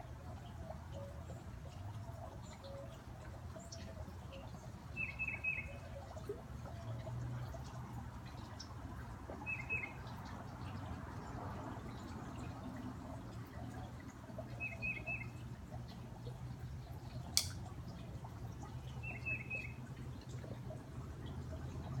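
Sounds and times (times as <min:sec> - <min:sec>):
fountain water running: 0:00.0 - 0:22.0
sharp click: 0:17.4 - 0:17.6.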